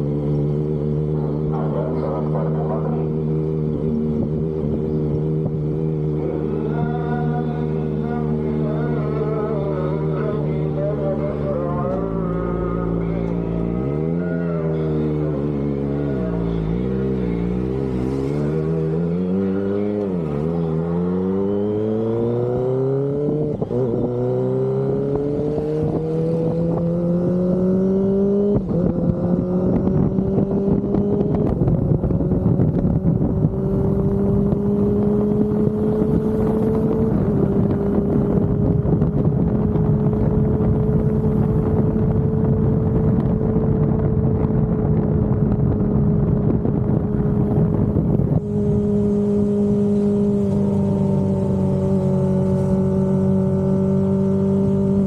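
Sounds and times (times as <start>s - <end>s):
motorcycle engine revving through gears: 0.0s - 55.0s
wind rush: 28.5s - 55.0s.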